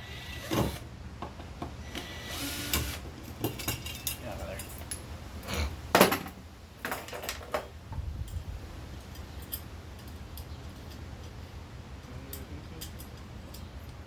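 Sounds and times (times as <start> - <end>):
clicks and clatters of tools: 2.7 - 7.7, 12.0 - 14.0.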